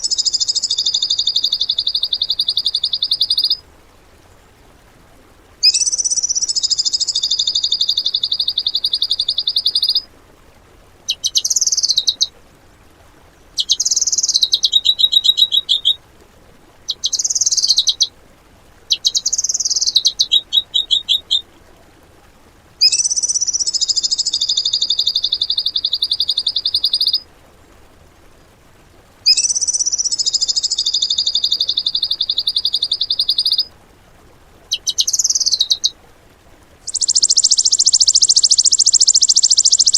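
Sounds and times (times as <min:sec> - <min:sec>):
bird chattering bursts: 0:00.0 - 0:03.6, 0:05.6 - 0:10.0, 0:11.1 - 0:12.3, 0:18.9 - 0:21.4, 0:22.8 - 0:27.2, 0:29.3 - 0:33.7, 0:34.7 - 0:35.9, 0:36.9 - 0:39.9
songbird trilling: 0:00.0 - 0:03.6, 0:05.6 - 0:10.1, 0:11.1 - 0:12.3, 0:13.6 - 0:16.0, 0:16.9 - 0:18.1, 0:18.9 - 0:21.4, 0:22.8 - 0:27.2, 0:29.3 - 0:33.7, 0:34.7 - 0:36.0, 0:36.8 - 0:39.9.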